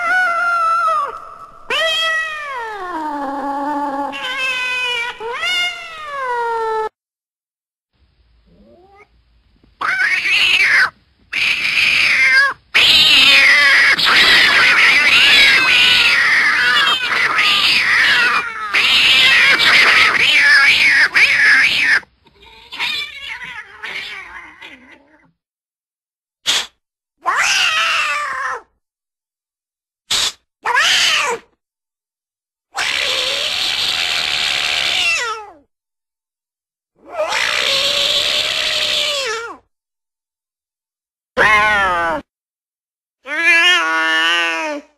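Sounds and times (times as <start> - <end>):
cat-like meows and yowls: 0.0 - 7.0, 9.8 - 25.3, 27.2 - 28.7, 30.6 - 31.5, 32.7 - 35.7, 37.0 - 39.7, 41.4 - 42.3, 43.2 - 44.9.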